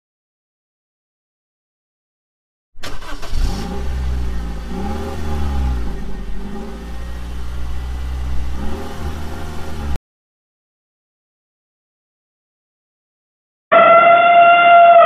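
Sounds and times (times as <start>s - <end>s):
car engine revving: 2.8s - 10.0s.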